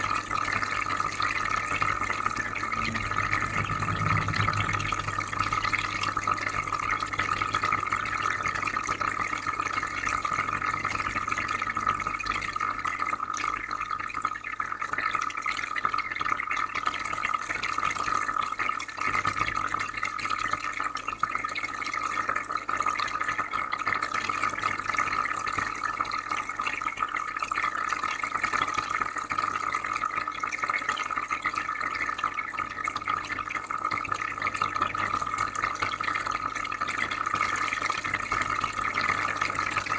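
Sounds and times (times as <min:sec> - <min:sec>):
water bubbling and trickling: 0:00.0 - 0:14.1
low filter hum: 0:01.4 - 0:09.0.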